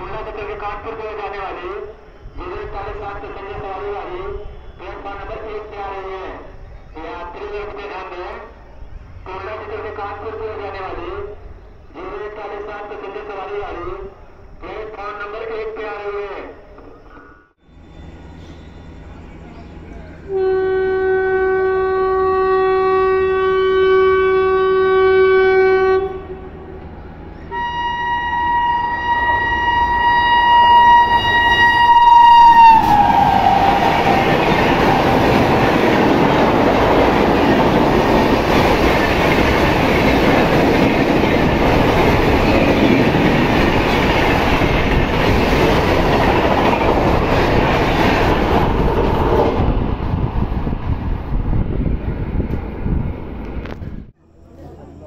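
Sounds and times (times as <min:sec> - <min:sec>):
train horn blasts: 0:20.2 - 0:35.7
train coaches rushing and clattering: 0:29.2 - 0:54.0.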